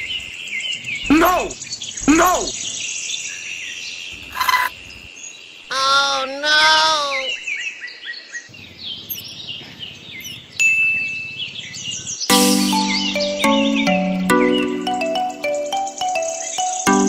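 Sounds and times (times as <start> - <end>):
small birds chirping: 0.0 - 17.0
short pitched cries: 1.1 - 2.5, 5.7 - 7.3.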